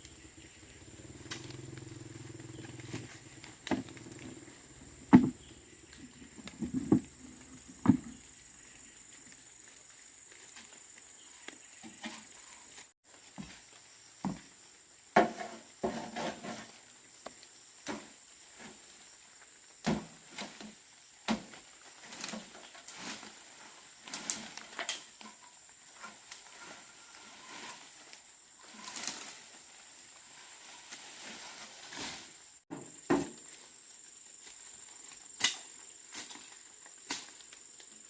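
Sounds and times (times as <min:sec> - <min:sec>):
high insect buzz: 0:00.0 - 0:38.0
rustling: 0:21.8 - 0:32.6.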